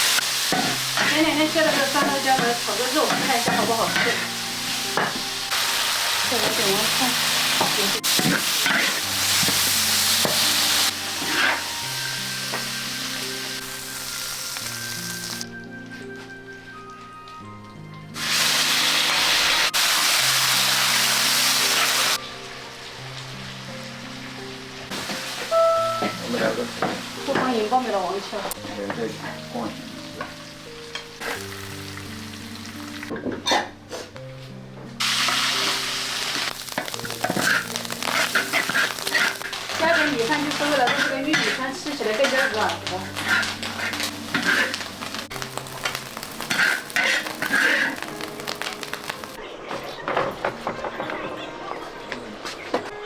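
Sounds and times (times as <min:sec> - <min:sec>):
stir-frying sizzle: 0:00.0 - 0:49.4
soft background music: 0:00.0 - 0:53.0
metal spatula scraping wok: 0:00.2 - 0:05.2, 0:07.5 - 0:11.8, 0:35.0 - 0:49.0.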